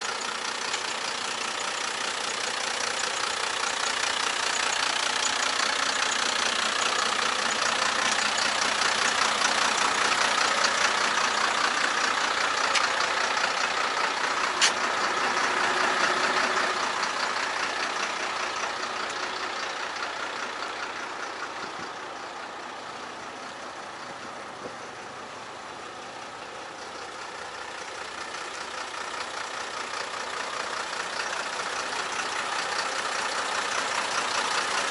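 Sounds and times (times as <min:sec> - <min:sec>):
truck diesel engine running: 0:00.0 - 0:34.9
sharp click: 0:14.6 - 0:14.8.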